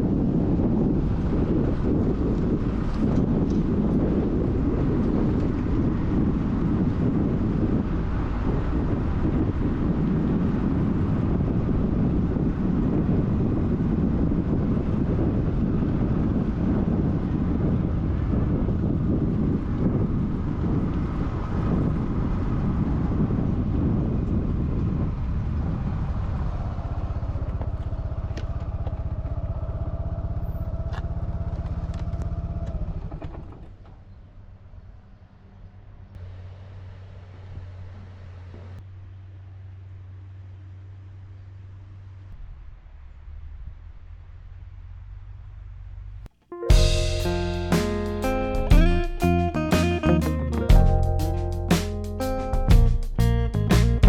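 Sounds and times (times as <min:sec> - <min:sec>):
wind rumble on microphone: 0:00.0 - 0:35.8, 0:40.2 - 0:54.0.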